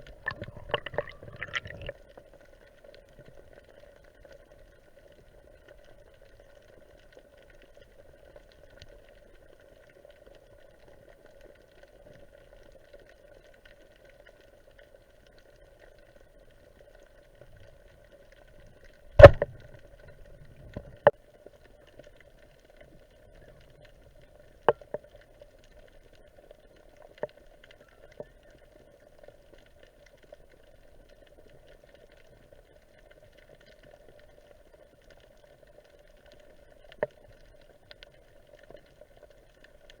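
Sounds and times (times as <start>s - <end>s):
sharp underwater clicks and knocks: 0.0s - 1.9s, 19.1s - 21.1s
faint underwater hum: 0.0s - 2.0s.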